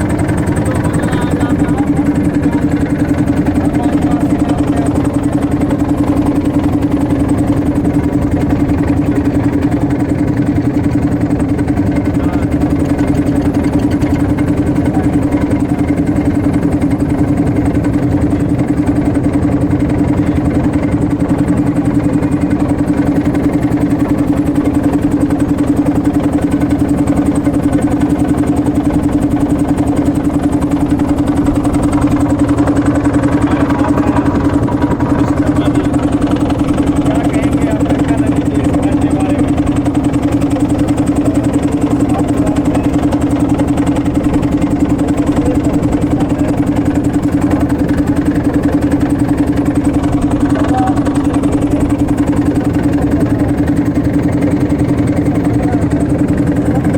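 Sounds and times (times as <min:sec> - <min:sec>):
motorboat engine droning: 0:00.0 - 0:56.9.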